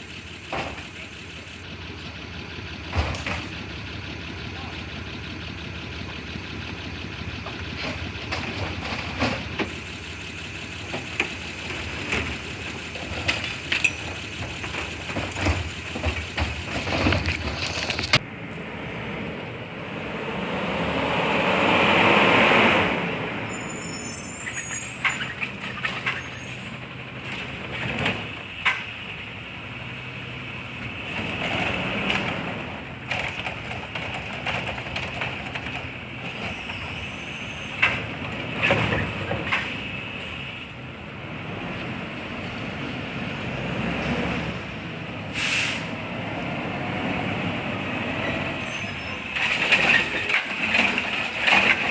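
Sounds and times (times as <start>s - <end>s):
garbage truck engine running: 0.0s - 51.9s
knocks and clanks: 0.4s - 1.1s, 2.8s - 3.7s, 7.4s - 10.1s, 10.8s - 18.2s.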